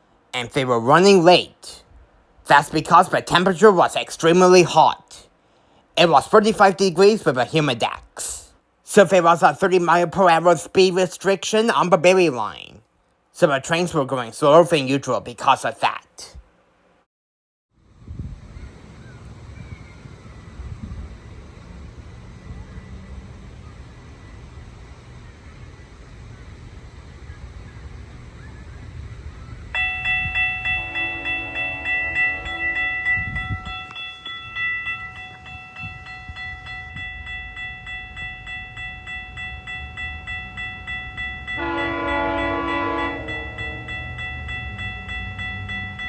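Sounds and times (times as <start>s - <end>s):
wind on microphone: 17.9s - 24.2s, 25.8s - 38.4s
level crossing bell ringing: 29.8s - 46.0s
train horn blast: 30.4s - 33.7s, 41.5s - 44.2s.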